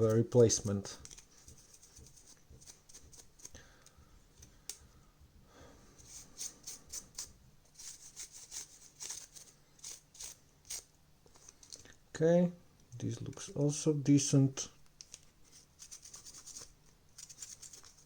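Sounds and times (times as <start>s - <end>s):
scraping and rubbing strokes: 0.0s - 3.5s, 5.9s - 11.7s, 15.4s - 18.0s
light clicks of plastic parts: 3.4s - 4.9s, 14.8s - 15.3s.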